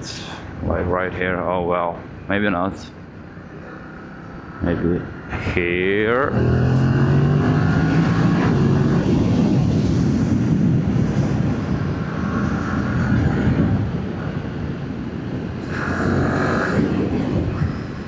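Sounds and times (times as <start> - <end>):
wind rushing over microphone: 4.4 - 18.0.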